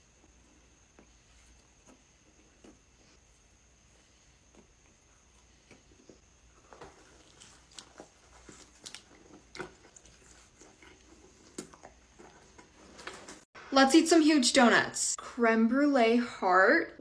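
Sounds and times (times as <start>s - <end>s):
chewing with wet mouth clicks: 4.5s - 13.2s.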